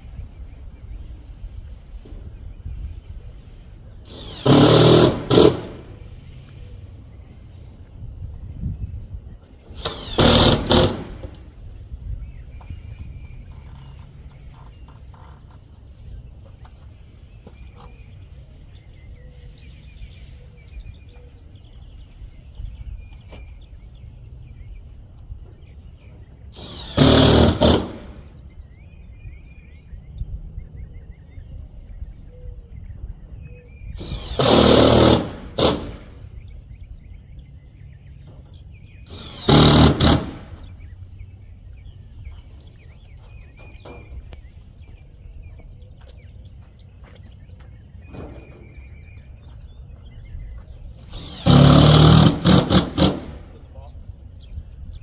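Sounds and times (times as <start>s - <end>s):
power screwdriver driving screws: 4.1s - 6.1s, 9.8s - 11.5s, 26.6s - 28.2s, 34.0s - 36.2s, 39.1s - 40.7s, 51.0s - 53.5s.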